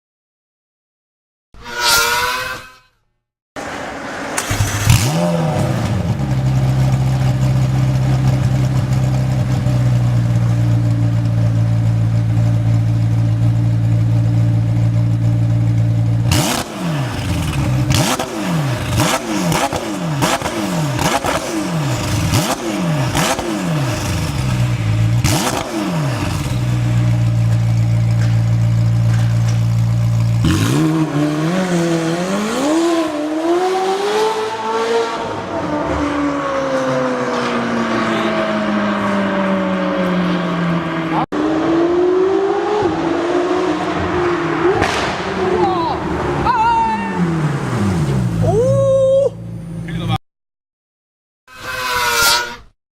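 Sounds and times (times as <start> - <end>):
sports car engine revving: 3.6 - 46.5
exhaust pops: 44.7 - 45.6.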